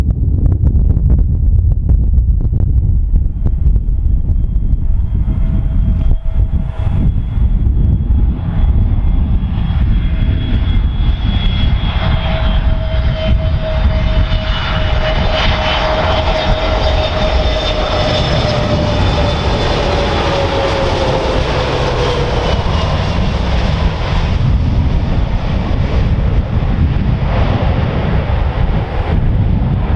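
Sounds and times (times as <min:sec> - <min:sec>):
jet engines whining past: 0:00.0 - 0:29.9
wind rumble on microphone: 0:00.0 - 0:29.9.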